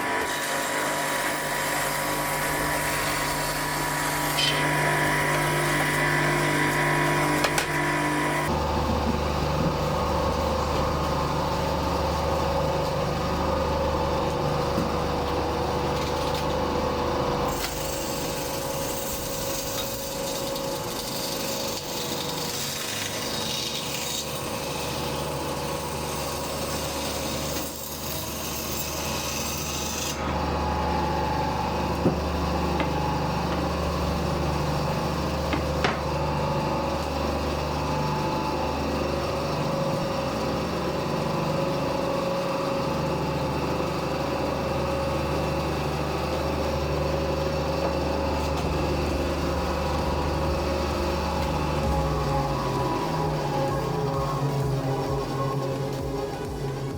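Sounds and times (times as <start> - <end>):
saw blade cutting wood: 0.0 - 8.6, 17.5 - 30.5
bandsaw motor humming: 0.0 - 56.9.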